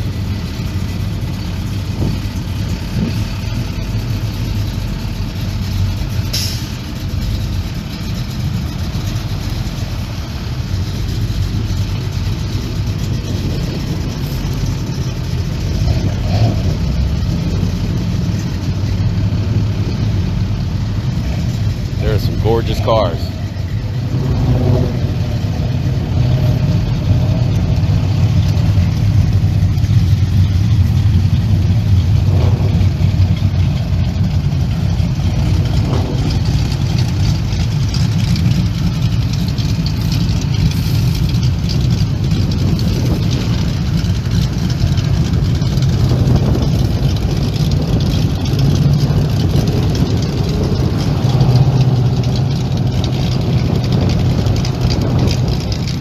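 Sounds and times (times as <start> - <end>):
car engines idling: 0.0 - 56.0.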